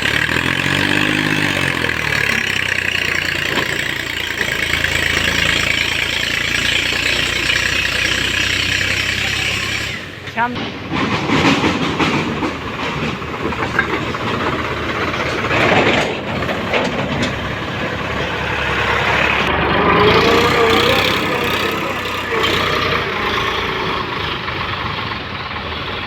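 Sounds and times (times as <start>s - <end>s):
tractor engine running: 0.0s - 26.0s
people's voices: 8.6s - 13.8s, 19.1s - 24.3s.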